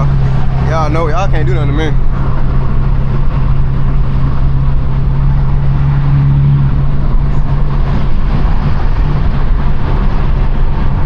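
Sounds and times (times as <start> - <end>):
car exhaust droning: 0.0 - 11.0.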